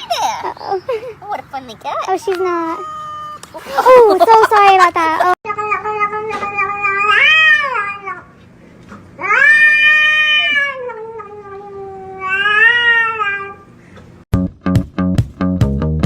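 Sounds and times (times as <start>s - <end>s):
cat yowling: 2.4s - 3.5s, 5.9s - 8.3s, 9.2s - 13.6s
music with strong beat: 14.4s - 16.0s.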